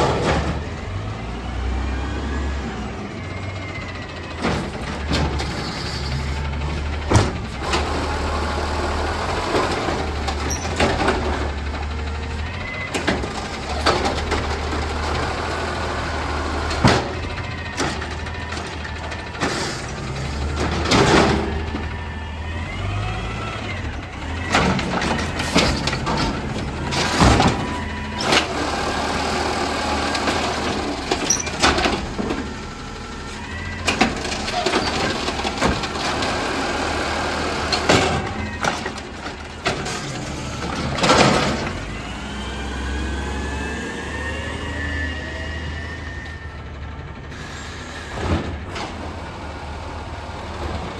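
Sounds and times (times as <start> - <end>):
bins knocking and banging: 0.0 - 1.0, 4.4 - 8.4, 9.1 - 12.2, 16.7 - 22.0, 24.2 - 32.8, 33.7 - 42.0
garbage truck diesel engine: 0.0 - 50.9
whines: 16.0 - 48.9.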